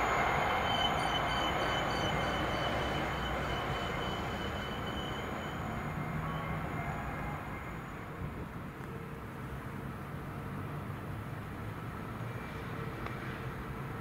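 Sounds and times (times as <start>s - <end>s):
train wheels rumbling on rails: 0.0s - 8.7s.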